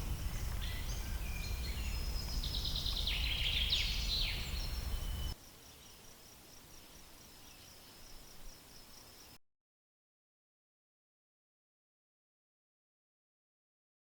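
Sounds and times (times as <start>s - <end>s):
bird chirping and trilling: 0.0s - 6.0s
high insect trill: 0.0s - 9.4s.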